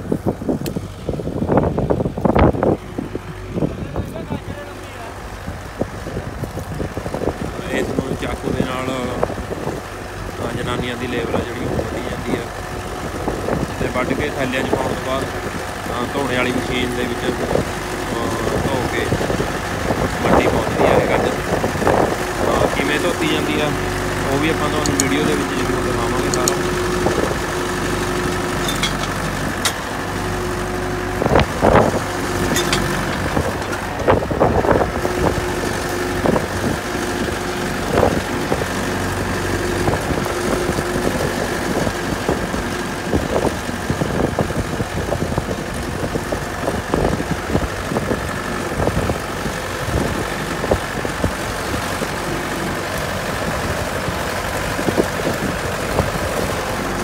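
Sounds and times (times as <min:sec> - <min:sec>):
tractor engine running: 0:00.0 - 0:57.0
short knocks and clatters: 0:28.6 - 0:29.8, 0:32.5 - 0:33.8.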